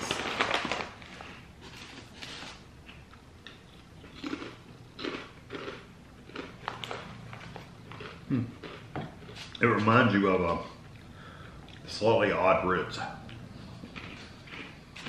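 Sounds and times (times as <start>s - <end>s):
crunchy crackers being chewed: 0.0s - 9.9s, 13.2s - 15.0s.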